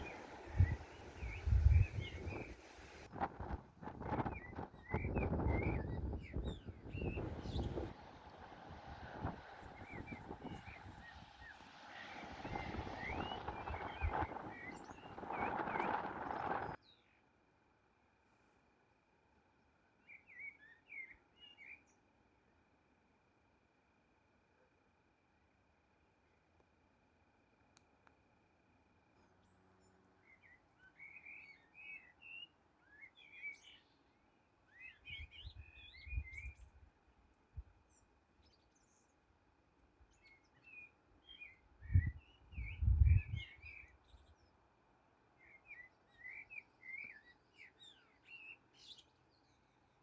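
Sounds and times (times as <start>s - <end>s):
songbird twittering: 0.0s - 3.0s, 4.1s - 8.5s, 9.2s - 17.2s, 29.9s - 36.8s, 40.1s - 44.6s, 45.4s - 49.8s.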